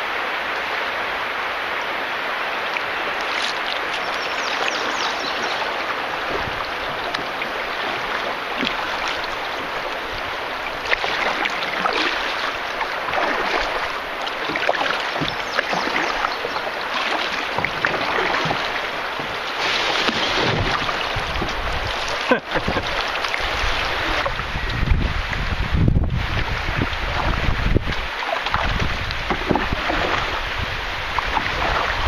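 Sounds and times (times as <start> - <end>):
river water rushing and splashing: 0.0 - 32.0
wind rumble on microphone: 6.1 - 12.0, 20.0 - 32.0.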